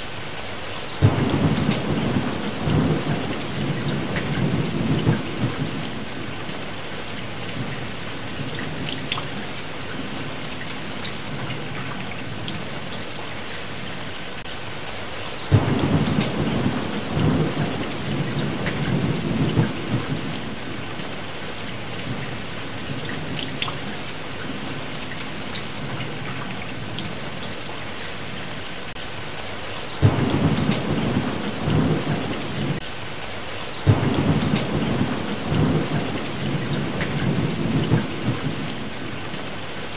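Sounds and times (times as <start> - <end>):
steady rain: 0.0 - 39.9
thunder rumbling: 1.0 - 6.5, 15.5 - 21.2, 30.0 - 32.8, 33.8 - 39.2.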